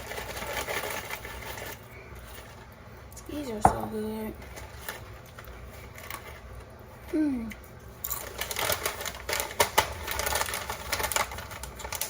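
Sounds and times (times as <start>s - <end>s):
crunchy chips being chewed: 8.0s - 12.0s.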